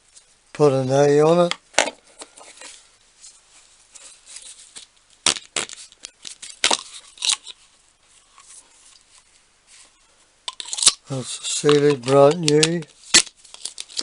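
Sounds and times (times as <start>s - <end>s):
packaging rustling: 10.6s - 14.0s.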